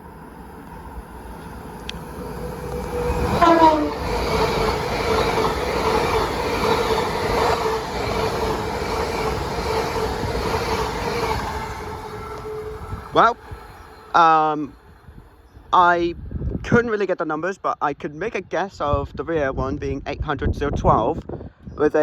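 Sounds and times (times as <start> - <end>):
train passing at speed: 0.0 - 16.6
train horn: 3.1 - 4.2.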